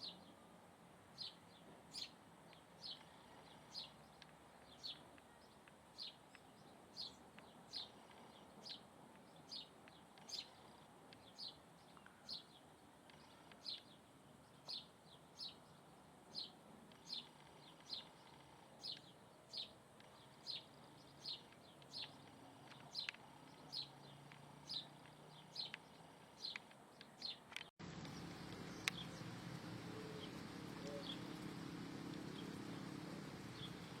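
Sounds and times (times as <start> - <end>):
bird chirping: 1.2 - 34.0
low steady hum: 27.8 - 34.0.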